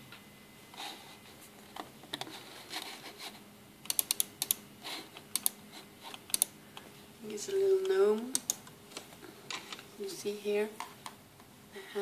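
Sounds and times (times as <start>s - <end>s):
computer keys clicking: 3.8s - 4.6s, 5.2s - 6.9s, 7.8s - 8.7s.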